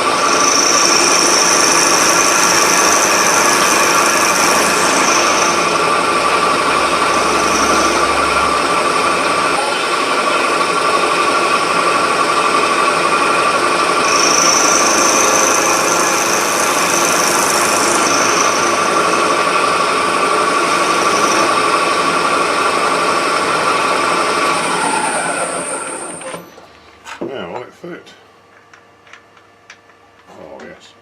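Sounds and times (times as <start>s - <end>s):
machine tool motor whining: 0.0s - 10.6s, 13.8s - 22.1s
high hissing whine: 0.0s - 27.0s.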